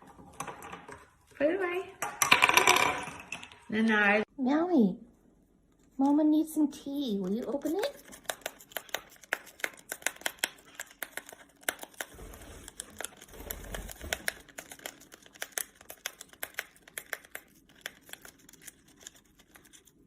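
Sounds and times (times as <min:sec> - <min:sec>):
parrot tearing open a packet: 0:07.7 - 0:20.0.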